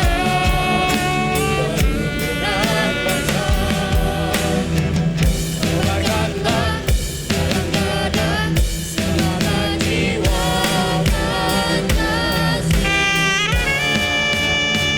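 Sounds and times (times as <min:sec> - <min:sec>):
choir singing: 0:00.0 - 0:14.9
drum beat: 0:00.0 - 0:14.9
guitar: 0:00.0 - 0:14.9.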